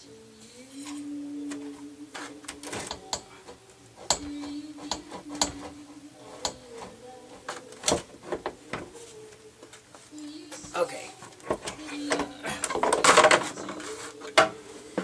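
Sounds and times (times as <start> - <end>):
tools clicking and knocking: 2.5 - 3.3, 4.0 - 8.9, 11.3 - 14.5.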